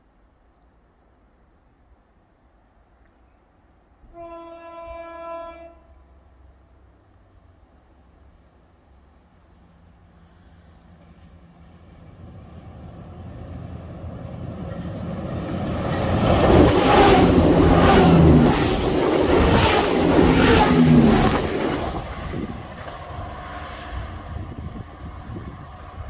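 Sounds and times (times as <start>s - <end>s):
train passing close by: 8.9s - 26.0s
wheels rushing on rails: 10.2s - 26.0s.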